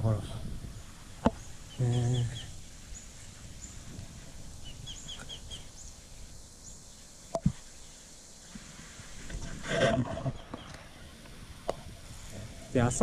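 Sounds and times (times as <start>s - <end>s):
bird chirping: 0.0s - 8.3s, 9.4s - 13.0s
steady outdoor hiss: 0.0s - 13.0s
higher faint chirps: 0.1s - 9.2s.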